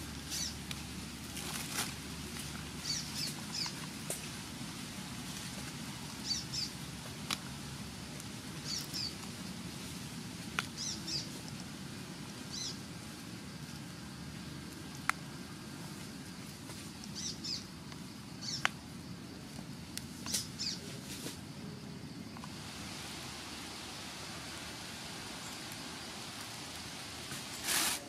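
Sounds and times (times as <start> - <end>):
hands picking in dry leaves: 0.1 - 6.4, 22.5 - 28.0
bird chirping: 0.3 - 0.6, 2.8 - 3.8, 6.2 - 6.8, 8.6 - 9.2, 10.8 - 11.3, 12.5 - 12.8, 17.1 - 17.7, 18.4 - 18.7, 20.2 - 20.9.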